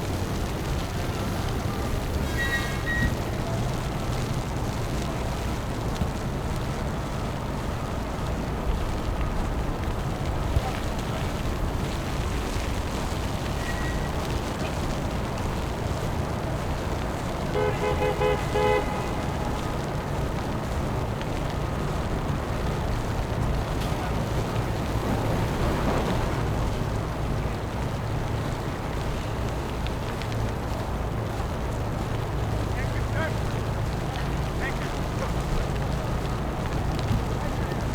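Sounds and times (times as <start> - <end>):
city street traffic rumble: 0.0 - 37.9
vehicle horn short beeps: 17.6 - 19.2.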